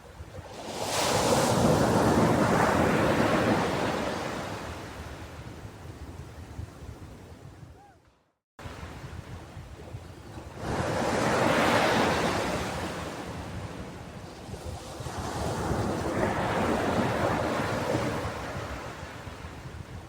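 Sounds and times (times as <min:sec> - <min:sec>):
ocean waves washing onto beach: 0:08.6 - 0:20.0.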